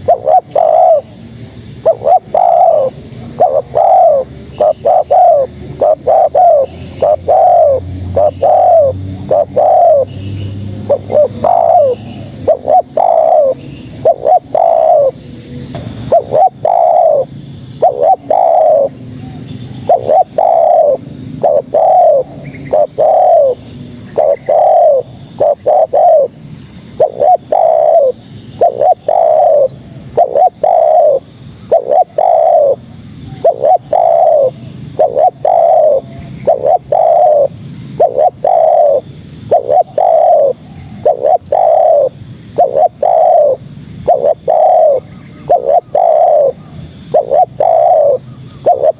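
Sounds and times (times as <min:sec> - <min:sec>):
dove cooing: 0:00.0 - 0:48.9.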